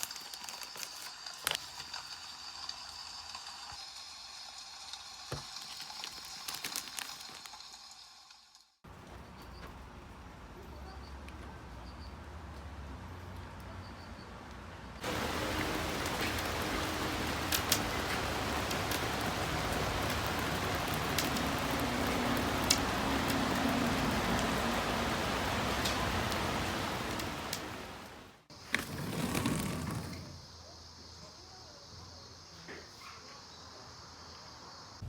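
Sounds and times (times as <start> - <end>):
water drips and taps: 15.0 - 28.2
steady rain falling: 15.0 - 30.2.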